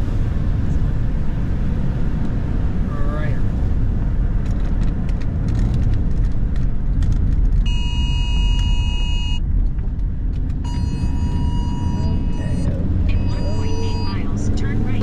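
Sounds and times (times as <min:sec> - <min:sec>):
road and engine rumble: 0:00.0 - 0:15.0
electronic tone: 0:07.7 - 0:09.4, 0:10.6 - 0:15.0.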